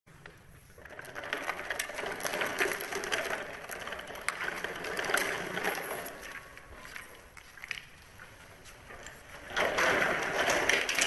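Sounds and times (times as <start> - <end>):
plastic toy truck rattling: 0.2 - 6.7, 8.9 - 11.0.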